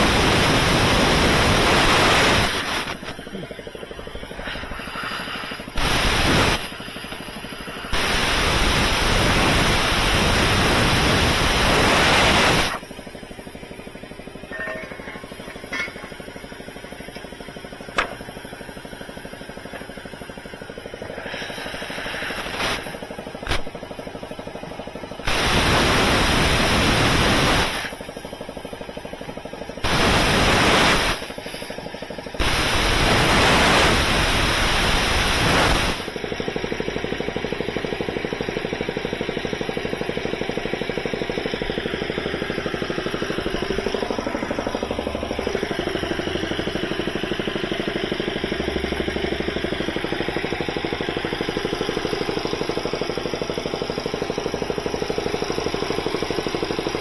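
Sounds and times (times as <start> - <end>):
loud hissing blasts: 0.0 - 14.5, 15.2 - 36.2.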